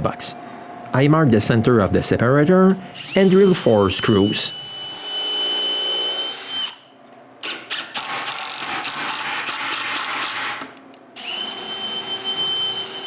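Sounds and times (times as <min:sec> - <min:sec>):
drill motor whine: 0:02.9 - 0:06.8, 0:11.2 - 0:13.0
drill ratcheting clicks: 0:07.4 - 0:10.5.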